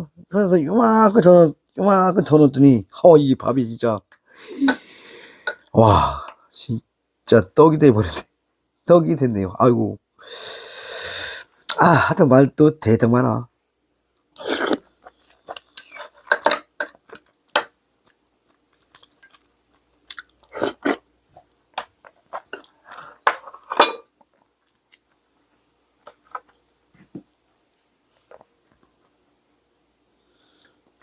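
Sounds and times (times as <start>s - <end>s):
chewing and crunching: 18.0s - 20.6s.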